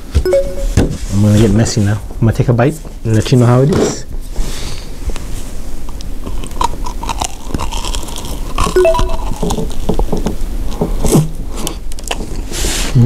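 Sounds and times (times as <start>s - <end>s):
crispy coating crunching in chewing: 5.9s - 8.8s.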